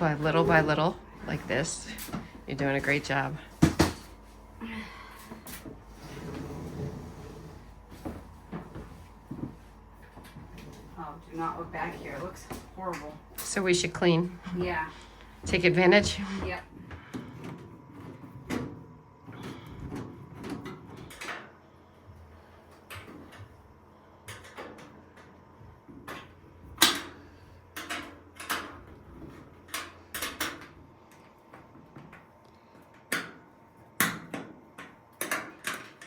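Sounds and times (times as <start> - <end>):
knocks and clunks on a dryer: 0.0 - 4.2, 14.6 - 21.4.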